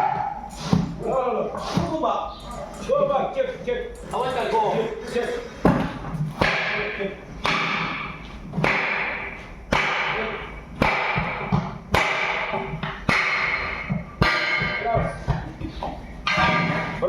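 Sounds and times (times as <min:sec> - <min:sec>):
hammer striking metal wheel: 0:06.4 - 0:15.5, 0:16.2 - 0:17.0.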